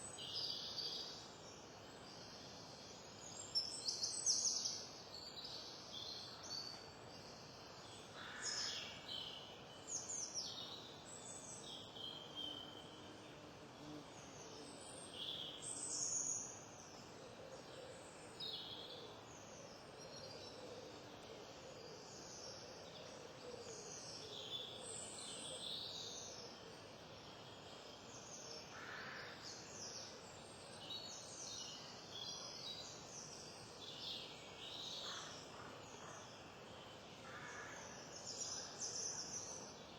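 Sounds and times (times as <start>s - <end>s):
faint steady hiss: 0.0s - 39.9s
wild birds chirping: 13.8s - 39.9s.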